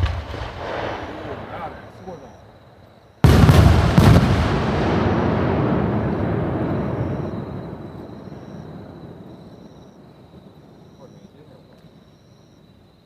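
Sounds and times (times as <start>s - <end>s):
firework boom: 0.0s - 2.3s, 3.2s - 11.1s.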